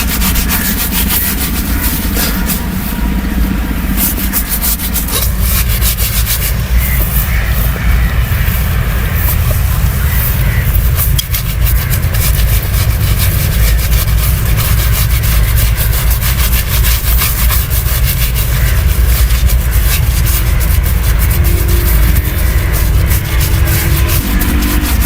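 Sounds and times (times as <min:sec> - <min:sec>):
razor shaving skin: 0:00.0 - 0:02.7, 0:04.0 - 0:07.5, 0:09.2 - 0:25.0
steady low rumble: 0:00.0 - 0:25.0.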